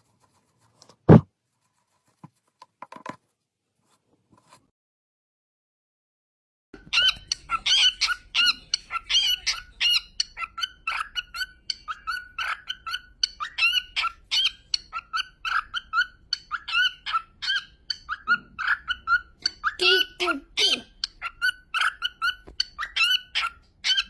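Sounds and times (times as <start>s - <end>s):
parrot calling: 6.8s - 24.0s.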